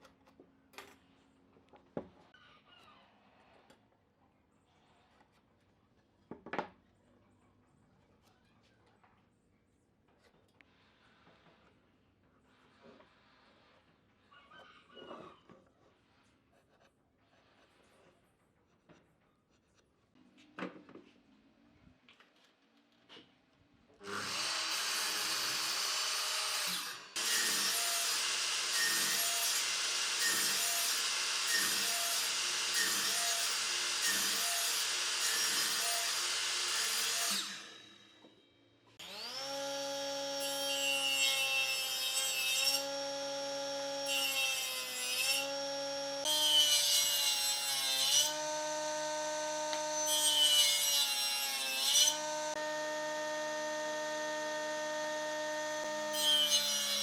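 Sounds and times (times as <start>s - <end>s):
power tool cutting wood: 24.0s - 38.2s, 39.0s - 57.0s
rasping sawing or sanding: 24.1s - 37.8s, 46.2s - 57.0s
power tool motor running: 24.1s - 37.9s, 48.3s - 50.4s, 52.1s - 57.0s.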